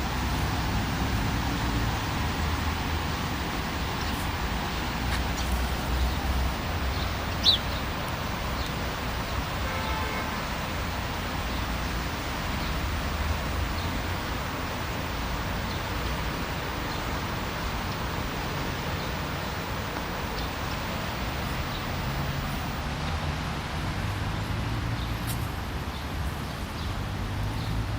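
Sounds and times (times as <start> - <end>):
distant traffic rumble: 0.0 - 27.9
bird chirp: 6.9 - 7.9.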